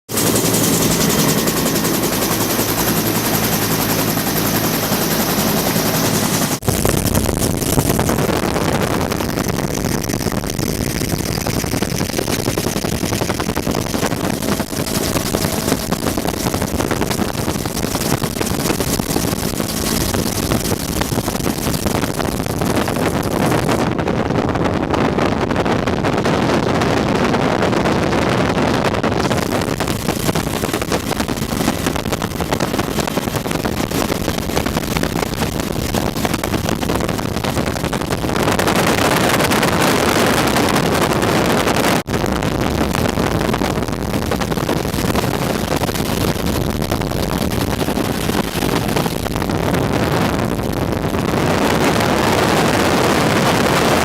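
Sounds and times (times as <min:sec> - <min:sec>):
helicopter rotor chopping: 0:00.0 - 0:24.3, 0:29.2 - 0:54.0
helicopter whine: 0:00.1 - 0:24.1, 0:29.2 - 0:42.2, 0:42.8 - 0:54.0.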